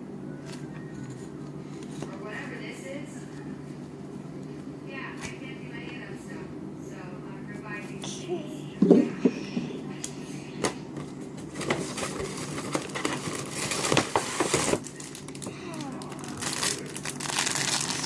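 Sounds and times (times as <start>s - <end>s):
plastic packaging crinkling: 11.5s - 18.0s.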